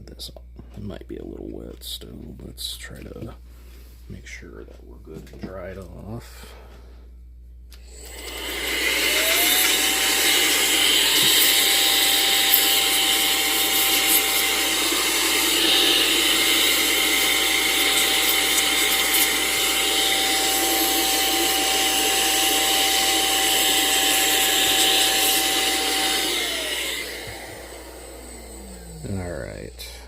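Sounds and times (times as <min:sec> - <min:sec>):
electric dryer blowing: 0:07.7 - 0:30.0.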